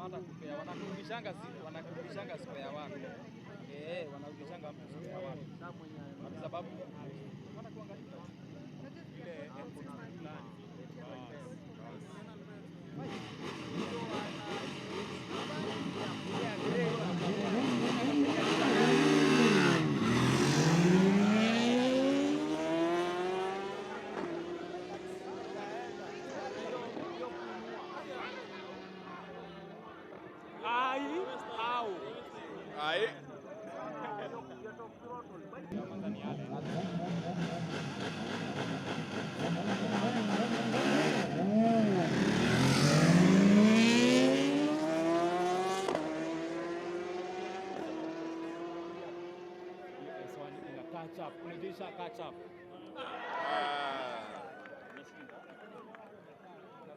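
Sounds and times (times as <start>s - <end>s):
vehicle engine accelerating: 12.9s - 30.5s, 35.7s - 52.8s.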